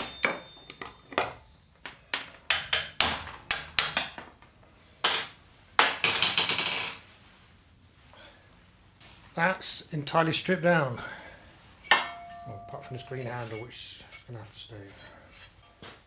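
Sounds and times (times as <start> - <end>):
hammer striking metal: 5.0 - 5.4, 11.9 - 13.2.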